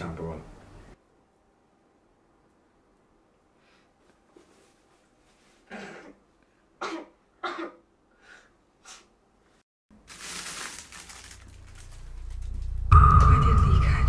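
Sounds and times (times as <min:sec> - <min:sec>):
woman coughing: 0:05.7 - 0:06.2, 0:06.8 - 0:07.9.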